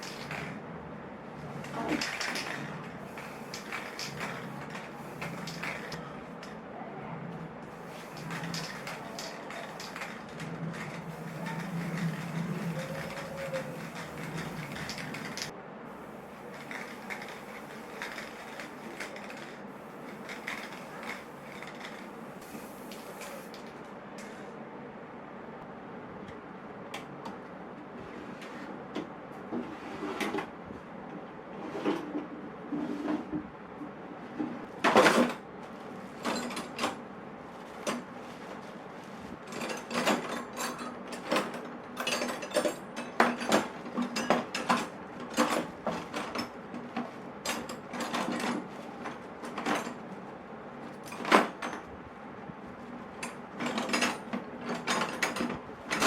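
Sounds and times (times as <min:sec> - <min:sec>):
tools clinking in metal toolbox: 0:39.5 - 0:46.6.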